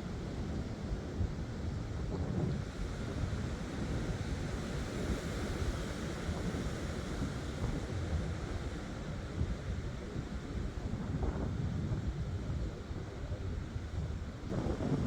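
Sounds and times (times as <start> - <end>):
wind buffeting microphone: 10.8 - 15.0.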